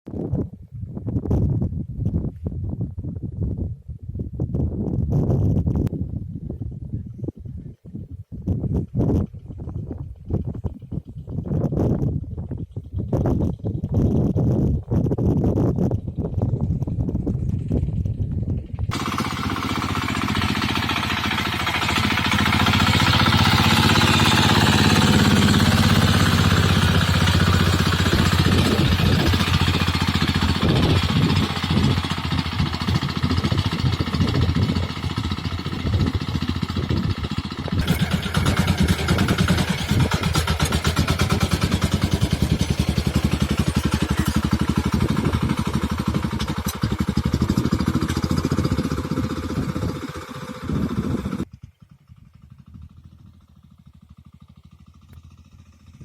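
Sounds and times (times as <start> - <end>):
tractor engine running: 15.8 - 56.0.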